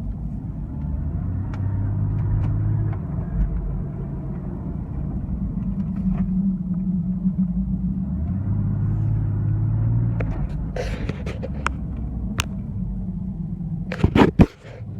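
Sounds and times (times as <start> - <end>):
car engine running: 0.0 - 14.9.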